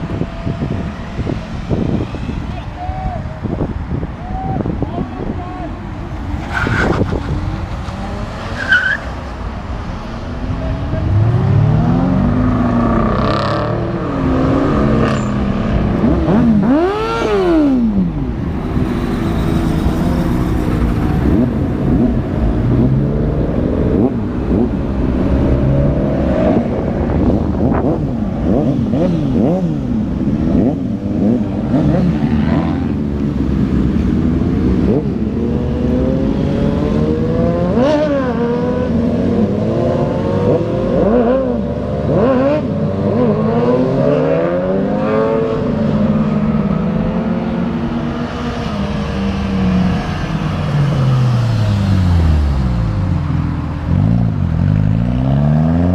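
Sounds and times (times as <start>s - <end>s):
car engines revving past: 5.9s - 55.9s.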